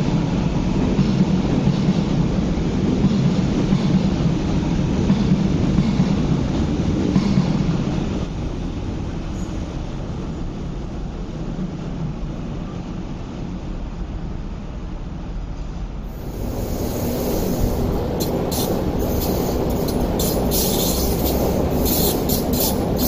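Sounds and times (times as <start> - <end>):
electric train rumbling: 0.0 - 23.0.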